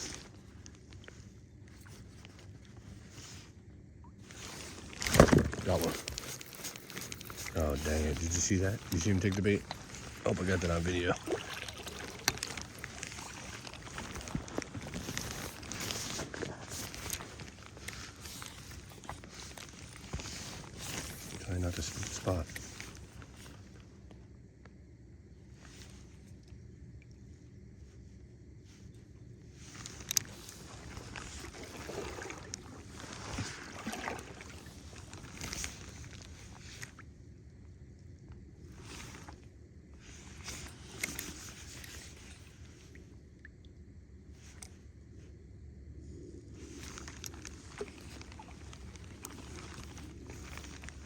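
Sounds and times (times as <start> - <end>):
wind: 0.0 - 51.0
rain pattering: 5.6 - 18.1.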